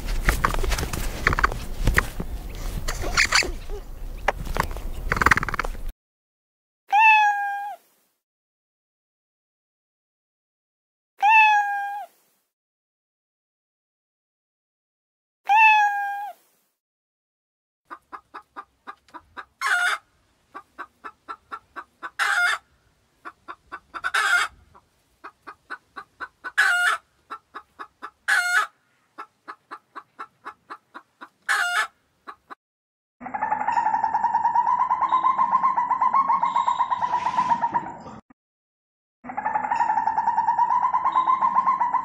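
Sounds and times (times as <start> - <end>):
hen cackling: 2.9 - 3.9, 17.9 - 32.6, 33.2 - 38.1, 39.3 - 42.0.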